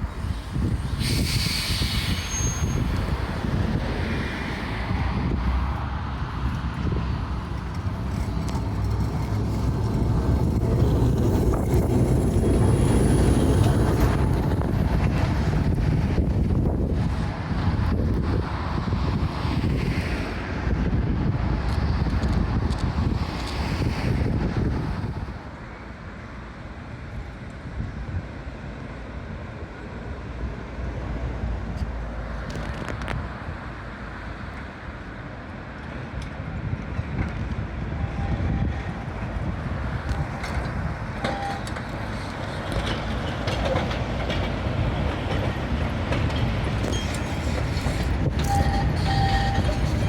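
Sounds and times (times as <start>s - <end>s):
wind buffeting microphone: 0.0s - 25.5s, 35.8s - 50.0s
tram wheels rumbling on rail: 0.0s - 50.0s.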